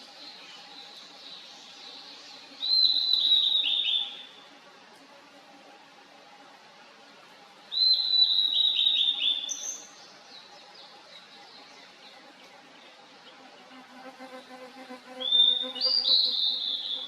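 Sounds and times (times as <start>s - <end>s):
bird singing: 0.2s - 4.4s, 7.7s - 13.5s, 14.7s - 17.0s.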